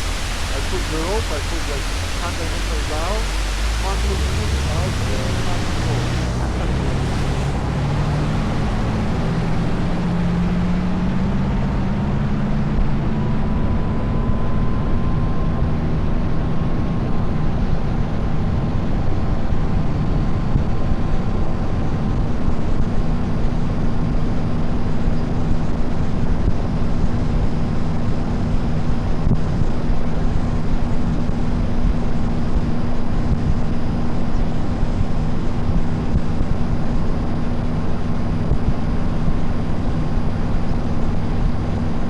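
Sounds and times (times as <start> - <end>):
water rushing past hull: 0.0 - 12.2
motorboat engine running: 0.0 - 16.2.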